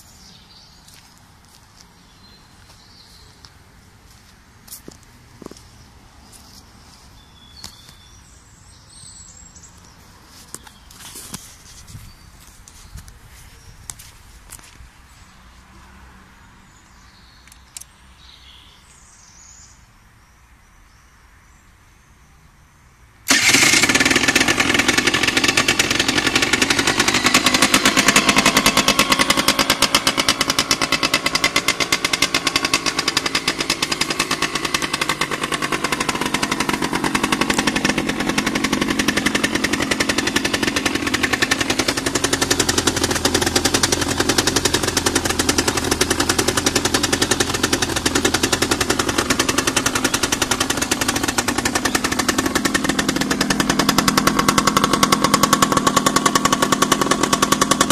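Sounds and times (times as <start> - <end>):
two-stroke engine idling: 23.3 - 57.9.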